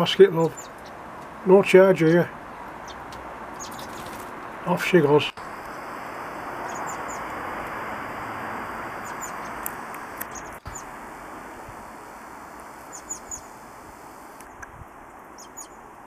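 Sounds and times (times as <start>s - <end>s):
small birds chirping: 0.0s - 15.9s
steady background rush: 2.6s - 14.5s.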